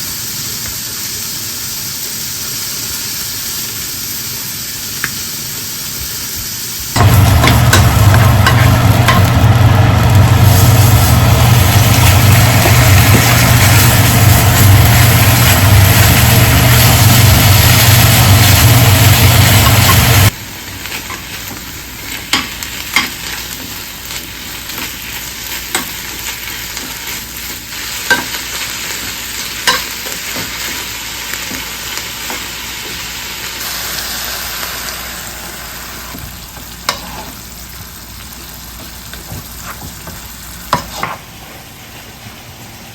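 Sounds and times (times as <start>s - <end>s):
food sizzling in a frying pan: 0.0s - 42.9s
low hum: 7.0s - 20.3s.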